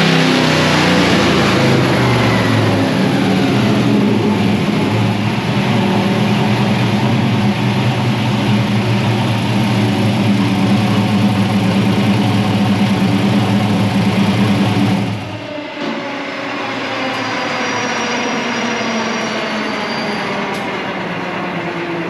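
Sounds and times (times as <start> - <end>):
truck engine running: 0.0 - 15.5.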